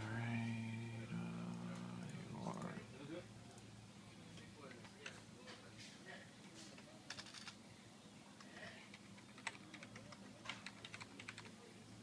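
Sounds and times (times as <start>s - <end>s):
low electrical hum: 0.0s - 12.0s
computer keyboard typing: 7.1s - 7.6s, 8.8s - 11.6s.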